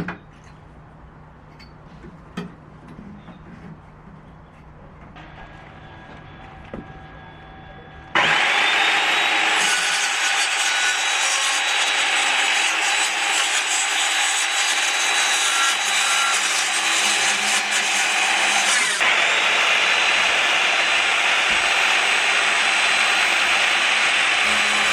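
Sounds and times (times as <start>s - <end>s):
saw cutting through wood: 8.1s - 24.9s.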